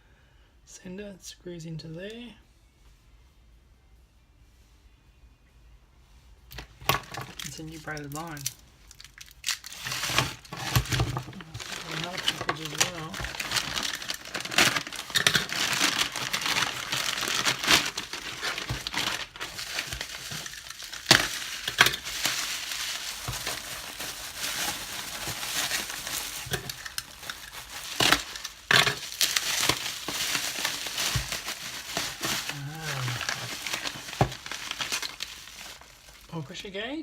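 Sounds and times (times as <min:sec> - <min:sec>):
parcel packaging torn open: 0:06.5 - 0:36.3
plastic and paper crinkling: 0:06.5 - 0:36.6.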